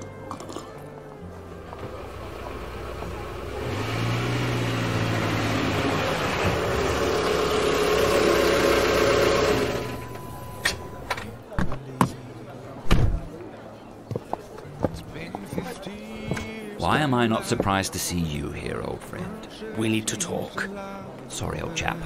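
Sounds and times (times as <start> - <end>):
car engine running: 1.4 - 11.1.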